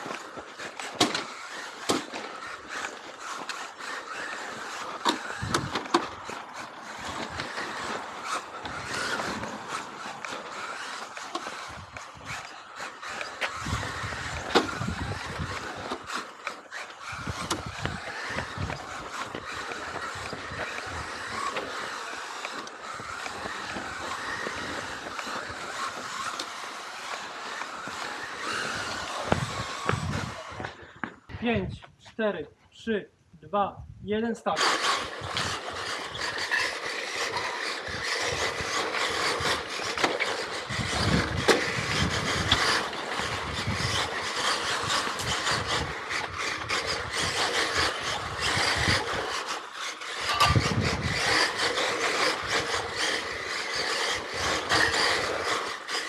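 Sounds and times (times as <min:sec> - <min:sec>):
electric motor whine: 0:00.0 - 0:31.3, 0:34.6 - 0:56.0
tyre and road noise: 0:00.0 - 0:32.0, 0:34.5 - 0:56.0.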